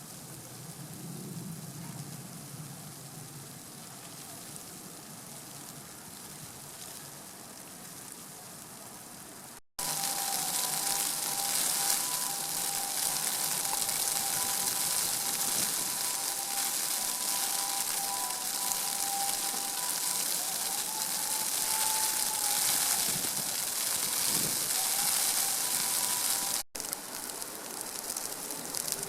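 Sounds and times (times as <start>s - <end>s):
flowing water rushing: 9.8s - 29.0s.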